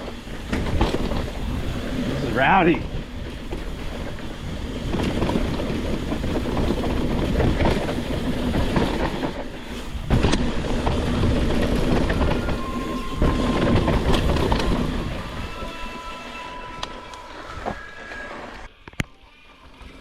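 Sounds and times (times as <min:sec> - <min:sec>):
bike and chain rattling: 0:00.0 - 0:18.7
tyres grinding over dirt and rock: 0:00.0 - 0:18.7
thin steady squeal: 0:11.9 - 0:19.8.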